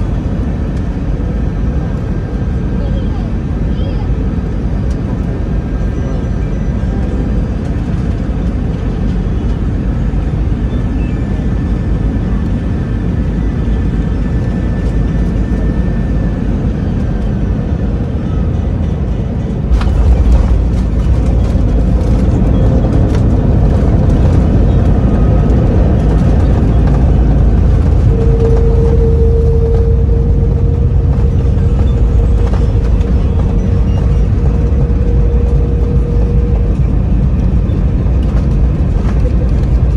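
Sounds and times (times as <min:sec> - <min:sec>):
airplane cabin engine drone: 0:00.0 - 0:39.9
landing gear rumble and knocks: 0:19.6 - 0:39.9.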